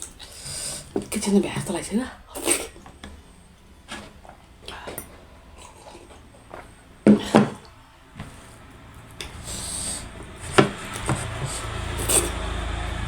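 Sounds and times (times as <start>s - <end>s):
low rumble: 7.7s - 13.0s.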